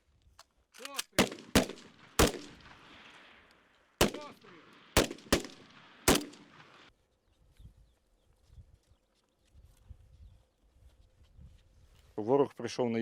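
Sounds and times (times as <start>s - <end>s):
gunshots with echo: 1.2s - 3.2s, 4.0s - 6.9s.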